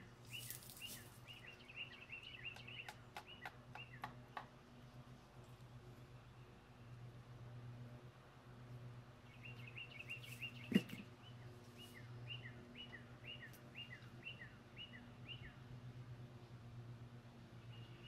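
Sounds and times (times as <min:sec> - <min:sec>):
songbird chirping: 0:00.0 - 0:07.0, 0:09.2 - 0:16.1, 0:17.5 - 0:18.0
low steady hum: 0:00.0 - 0:18.0.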